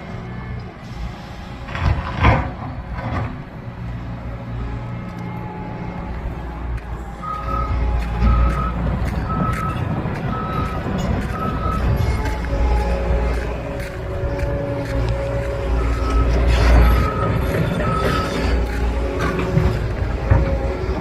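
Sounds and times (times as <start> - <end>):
demolition machine engine rumbling: 0.0 - 21.0
reversing beeper: 4.8 - 21.0.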